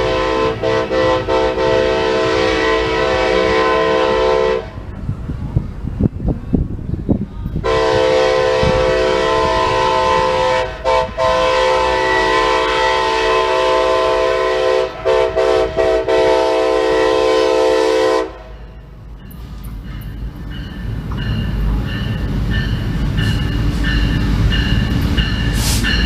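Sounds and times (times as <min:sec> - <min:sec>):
locomotive air horn: 0:00.0 - 0:04.8, 0:07.6 - 0:18.6
low rumble of train: 0:00.0 - 0:26.0.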